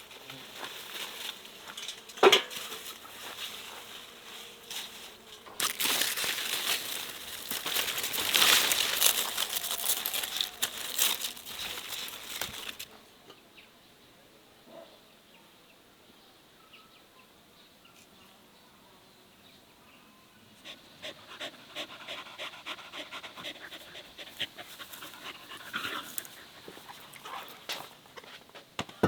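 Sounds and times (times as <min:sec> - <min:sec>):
crinkling rustling handling noise: 0:00.0 - 0:12.9.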